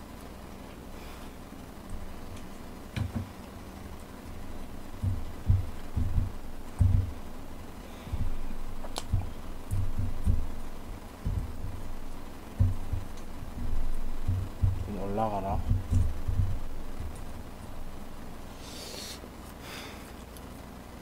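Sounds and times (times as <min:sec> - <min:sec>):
close chewing thumps: 0:01.8 - 0:18.5.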